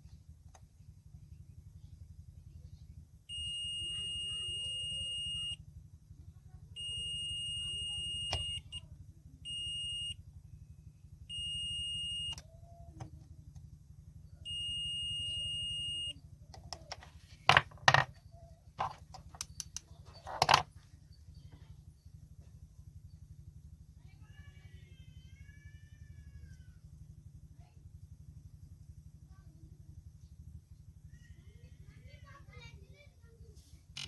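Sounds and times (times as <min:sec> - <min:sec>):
sharp handling clicks and knocks: 0:16.6 - 0:18.2, 0:18.8 - 0:20.8.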